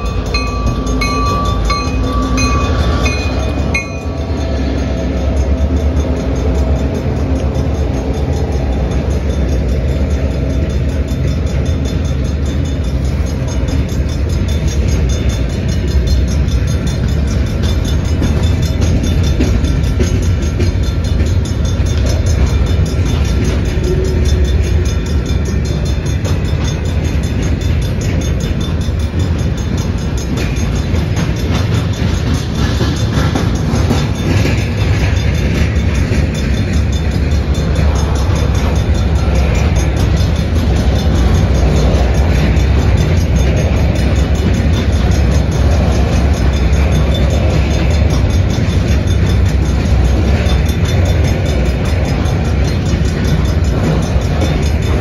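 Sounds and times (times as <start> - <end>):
diesel locomotive passing: 0.0 - 55.0
repeating ringing: 0.0 - 55.0
steel wheels rumbling on rails: 0.0 - 55.0.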